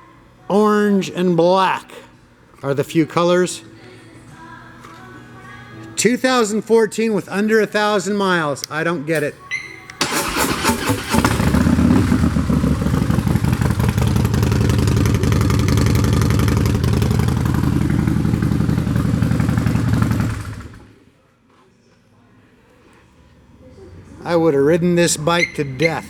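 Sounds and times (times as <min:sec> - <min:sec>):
motorcycle engine running: 0:10.2 - 0:21.0.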